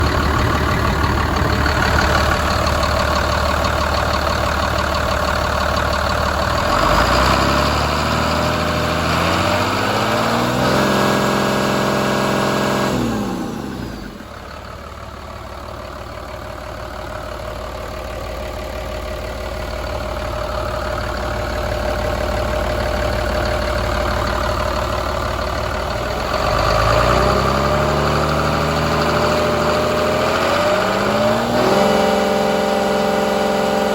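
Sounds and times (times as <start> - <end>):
diesel engine idling and revving: 0.0 - 33.9.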